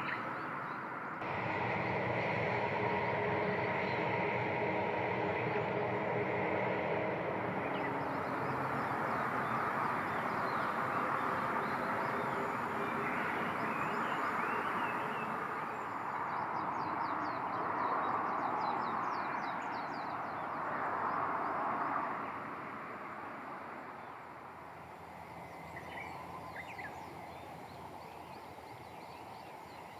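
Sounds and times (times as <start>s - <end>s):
steady rushing noise: 1.1s - 17.0s.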